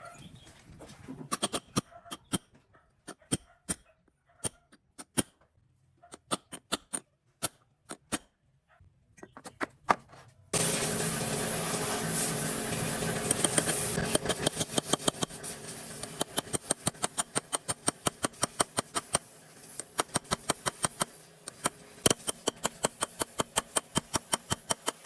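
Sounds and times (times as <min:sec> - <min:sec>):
sharp clicks and taps: 0:13.3 - 0:15.4, 0:16.0 - 0:19.2, 0:19.8 - 0:25.0.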